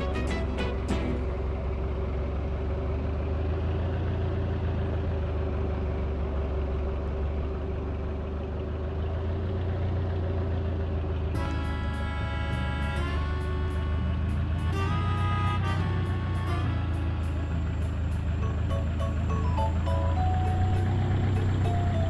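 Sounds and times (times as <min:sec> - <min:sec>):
ceiling fan motor hum: 0:11.4 - 0:22.0
faint steady tone: 0:14.4 - 0:22.0.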